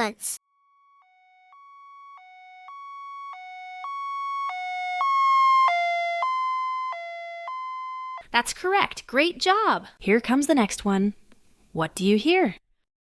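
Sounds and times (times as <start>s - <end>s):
ambulance siren two-tone wail: 1.6s - 8.2s.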